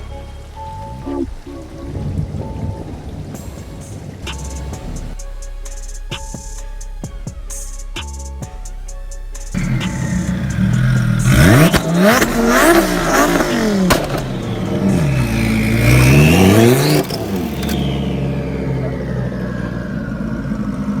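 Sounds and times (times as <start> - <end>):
engine idling: 0.0 - 21.0
sports car engine revving: 0.0 - 21.0
sharp crack: 3.4 - 6.8, 9.4 - 18.3.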